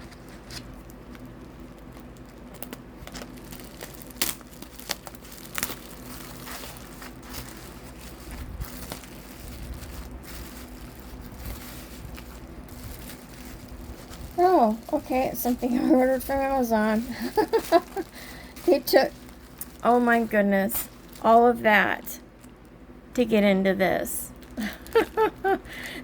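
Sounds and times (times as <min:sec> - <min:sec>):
packaging crinkling and rustling: 0:00.0 - 0:22.8, 0:24.3 - 0:26.0.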